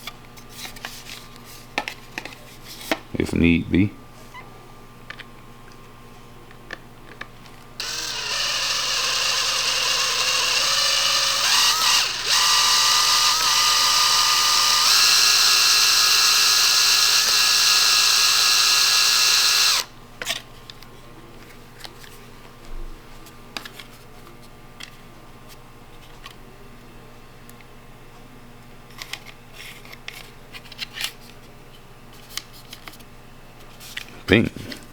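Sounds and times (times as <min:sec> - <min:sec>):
power tool motor whining: 0:07.8 - 0:19.9.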